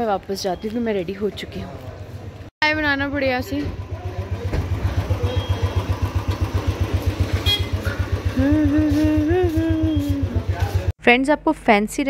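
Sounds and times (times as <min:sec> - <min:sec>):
motorcycle engine idling: 0:03.0 - 0:10.9.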